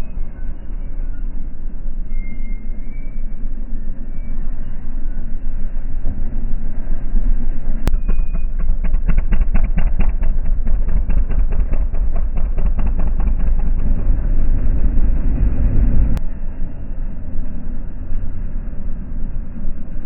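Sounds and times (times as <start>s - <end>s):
atv engine rumble: 0.0s - 16.4s
rattling knocks: 7.9s - 14.8s.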